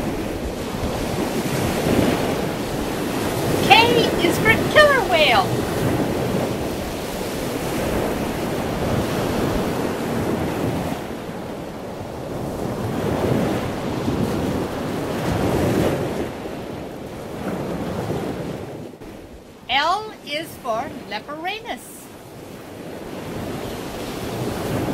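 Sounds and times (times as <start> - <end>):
wind noise on microphone: 0.0 - 19.5, 22.2 - 24.9.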